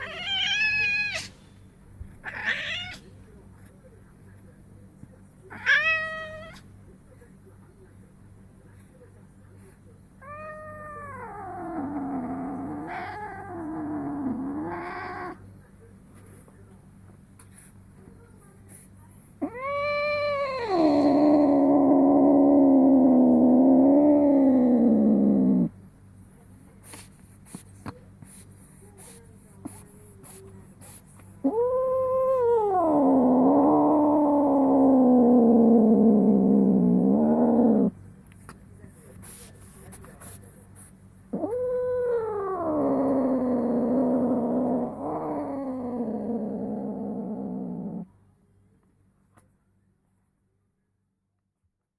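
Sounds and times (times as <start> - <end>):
cat caterwauling: 0.0 - 1.3, 2.2 - 3.0, 5.5 - 6.6, 10.2 - 15.4, 19.4 - 25.7, 31.4 - 37.9, 41.3 - 48.0.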